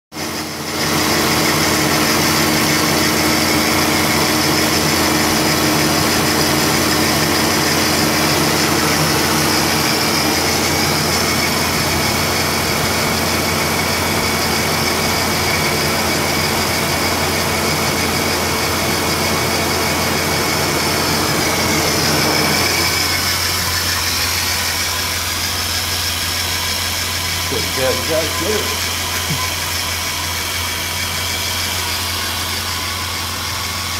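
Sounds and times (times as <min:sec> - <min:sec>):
car engine idling: 0:00.2 - 0:33.9.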